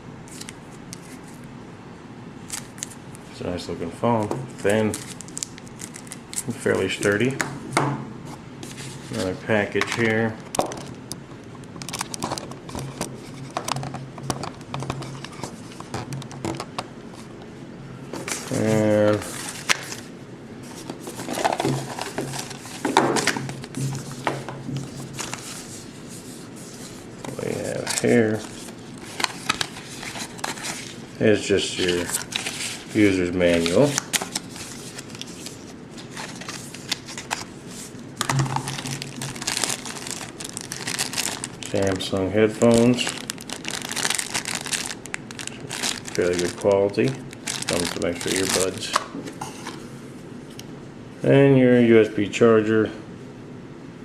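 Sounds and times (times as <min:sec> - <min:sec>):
packaging crinkling and clicking: 0:04.6 - 0:07.2, 0:09.9 - 0:16.9, 0:20.8 - 0:25.6, 0:27.2 - 0:31.0, 0:31.8 - 0:37.5, 0:38.2 - 0:42.0, 0:42.6 - 0:49.2.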